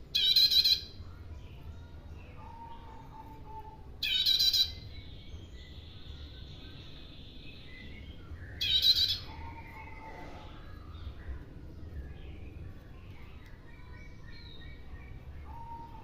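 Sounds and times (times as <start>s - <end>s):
faint bird calls: 12.8s - 16.0s.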